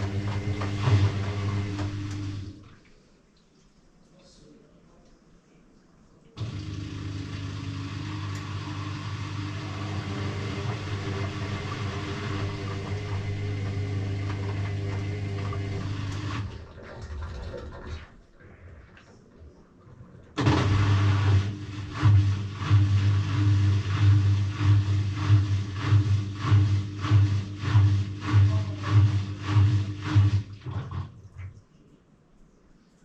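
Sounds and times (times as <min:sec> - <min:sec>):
washing machine drum tumbling: 0:00.0 - 0:02.4, 0:20.4 - 0:31.1.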